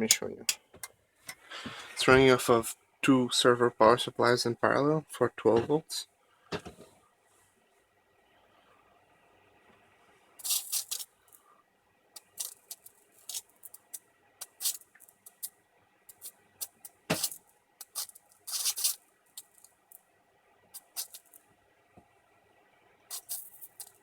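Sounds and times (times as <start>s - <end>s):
electric arc snap: 10.4s - 11.0s, 20.8s - 21.4s, 23.1s - 24.0s
electric arc crackling and hissing: 10.4s - 11.1s, 12.2s - 15.5s, 16.1s - 19.7s, 20.8s - 21.4s, 23.1s - 24.0s.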